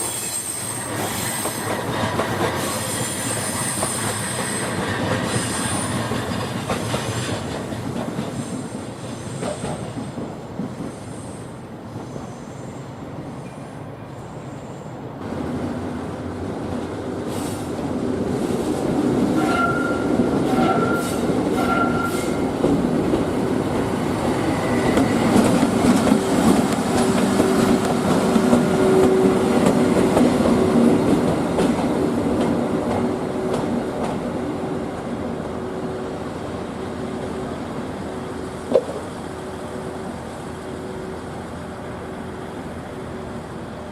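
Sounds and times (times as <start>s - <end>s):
wheel squeal: 0.0s - 1.8s
train running on rails: 0.0s - 43.9s.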